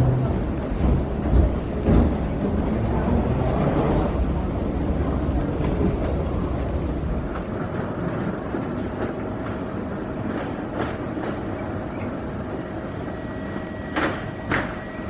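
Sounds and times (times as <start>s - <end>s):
vehicle rumble: 0.0s - 8.7s
faint clicks: 0.5s - 7.6s
thin steady whine: 12.4s - 15.0s.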